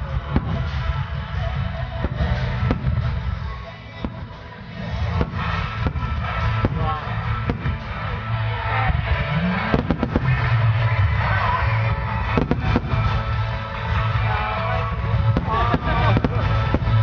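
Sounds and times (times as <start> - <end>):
loud music: 0.0 - 17.0
firework shells booming: 2.0 - 3.2, 4.0 - 8.1, 9.0 - 10.5, 12.2 - 13.5, 15.2 - 17.0.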